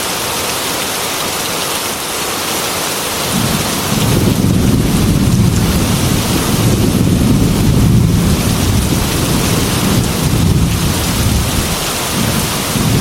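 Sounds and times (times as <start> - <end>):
heavy rain: 0.0 - 13.0
thunder rumble: 3.3 - 13.0.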